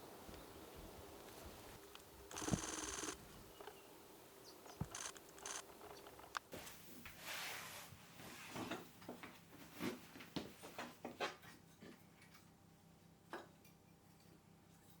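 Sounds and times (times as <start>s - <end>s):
rustle: 0.0s - 8.8s.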